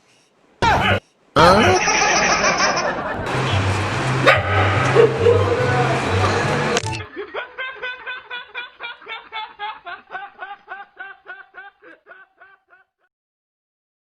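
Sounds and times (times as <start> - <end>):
snickering laugh: 0.8 - 3.2, 7.0 - 13.1.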